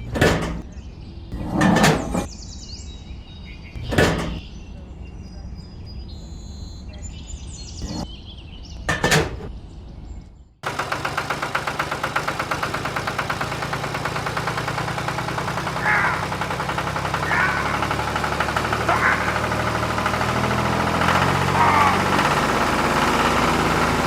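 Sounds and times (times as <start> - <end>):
clatter: 10.6 - 24.0
tractor engine idling: 10.6 - 24.0.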